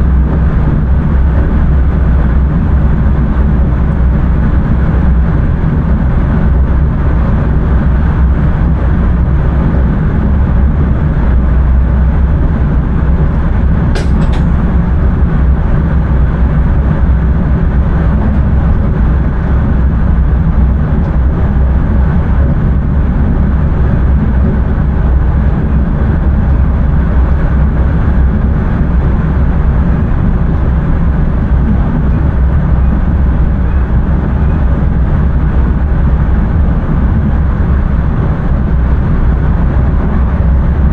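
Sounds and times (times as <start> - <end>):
train wheels rumbling: 0.0 - 40.9
sharp click: 14.0 - 14.6.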